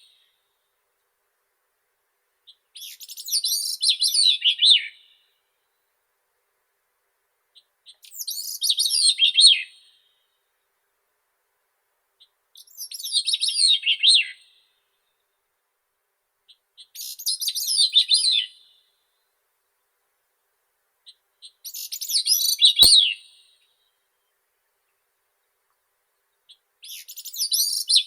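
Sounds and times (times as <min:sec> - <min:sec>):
faint click: 0:25.6 - 0:25.9.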